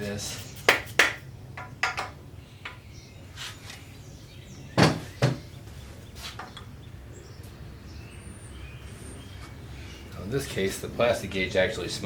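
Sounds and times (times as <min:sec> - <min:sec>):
sharp knocks of engine parts: 0:00.7 - 0:02.9, 0:04.8 - 0:05.5.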